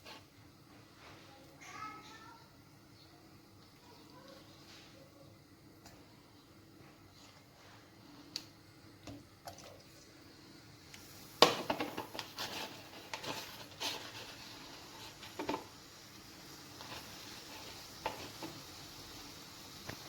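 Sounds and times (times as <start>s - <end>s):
food sizzling in oil: 10.2s - 20.0s
pan clatter and knocks: 11.4s - 14.2s, 15.2s - 15.7s.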